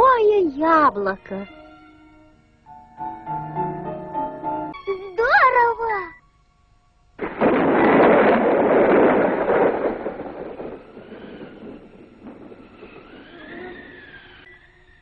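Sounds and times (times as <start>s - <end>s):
faint music: 0.0s - 7.2s
cartoon rushing noise: 12.8s - 14.5s.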